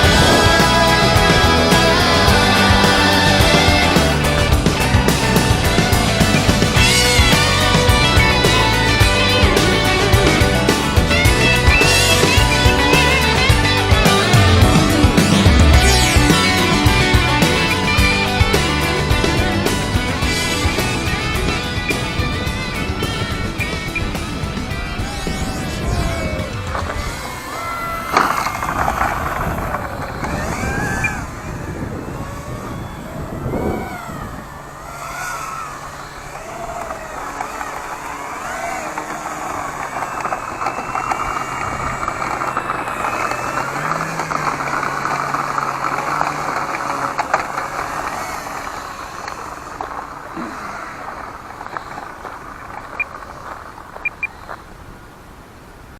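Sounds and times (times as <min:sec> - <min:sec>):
wind noise on microphone: 0:00.0 - 0:38.0
model plane motor whining: 0:00.0 - 0:53.7.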